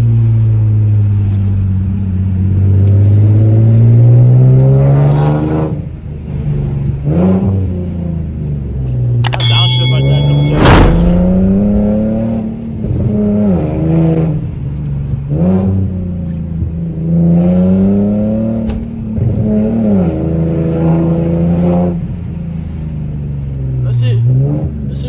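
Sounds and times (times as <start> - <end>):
loud whoosh: 10.0 - 12.8
car engine revving: 10.5 - 16.1.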